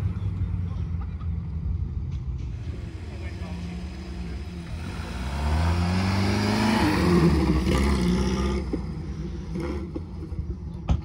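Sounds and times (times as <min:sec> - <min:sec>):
sports car engine accelerating past: 0:02.7 - 0:10.3.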